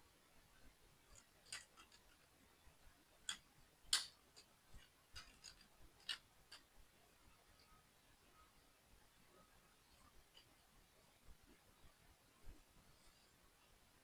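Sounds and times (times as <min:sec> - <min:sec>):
plastic model parts clicking: 0:01.1 - 0:02.3, 0:03.3 - 0:06.7.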